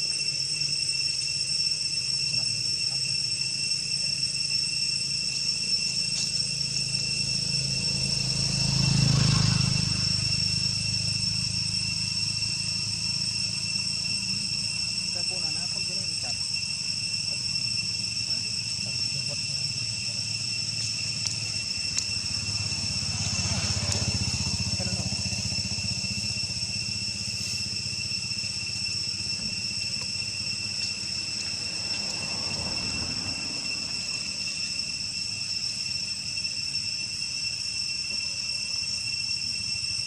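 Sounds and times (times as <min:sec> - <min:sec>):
high-pitched insect drone: 0:00.0 - 0:40.0
vehicles passing: 0:06.2 - 0:15.8, 0:16.6 - 0:38.7.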